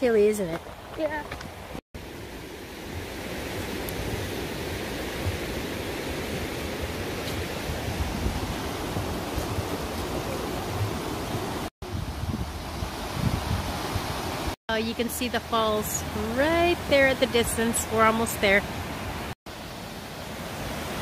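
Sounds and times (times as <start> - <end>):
wind blowing on microphone: 2.9 - 14.6.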